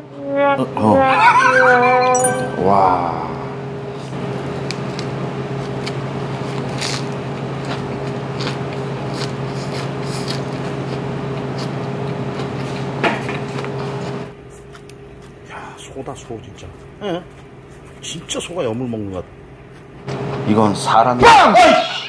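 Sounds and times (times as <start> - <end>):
low electrical hum: 0.0 - 21.2
chewing leaves crunching: 4.8 - 12.9.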